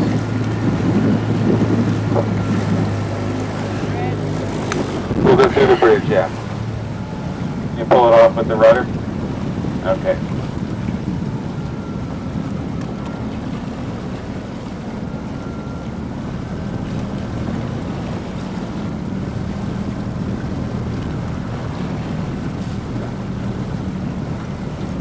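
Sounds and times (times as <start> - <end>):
wind on microphone: 0.0 - 7.9
boat engine drone: 0.0 - 25.0
water noise: 0.0 - 25.0.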